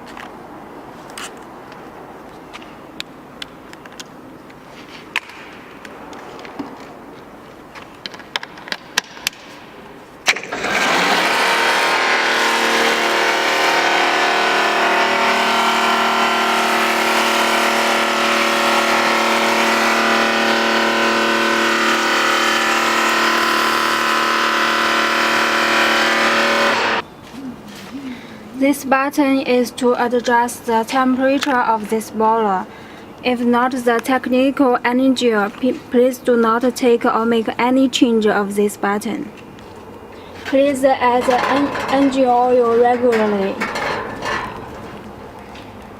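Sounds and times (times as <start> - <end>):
pressure pump running: 10.3 - 27.0.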